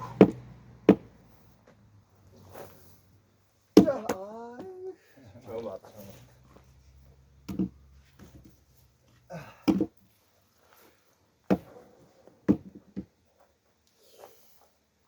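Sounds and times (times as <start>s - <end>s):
axe striking a log: 0.0s - 1.1s, 3.8s - 4.3s, 7.5s - 7.8s, 9.6s - 10.0s, 11.5s - 11.8s.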